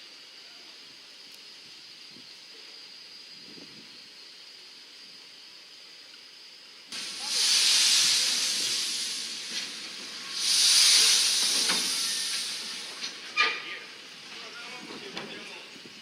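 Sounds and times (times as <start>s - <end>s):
air hissing from brakes: 6.9s - 15.0s.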